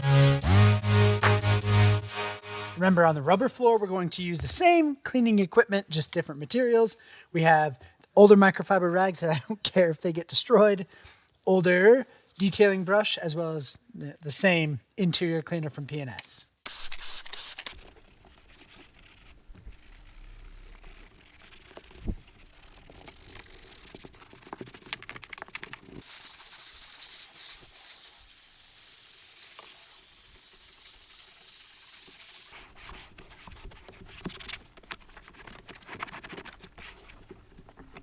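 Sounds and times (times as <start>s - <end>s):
brush scrubbing rubber mat: 16.7s - 27.8s, 32.5s - 38.0s.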